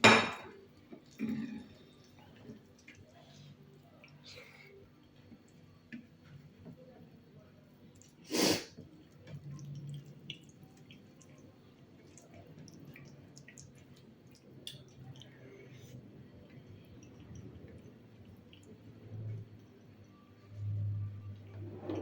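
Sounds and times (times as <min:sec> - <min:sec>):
wet chewing: 0:08.8 - 0:18.8.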